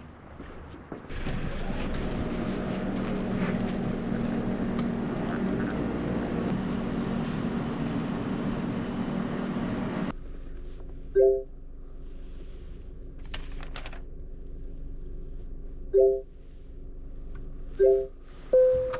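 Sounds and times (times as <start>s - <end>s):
vehicle engine humming: 1.1s - 10.2s.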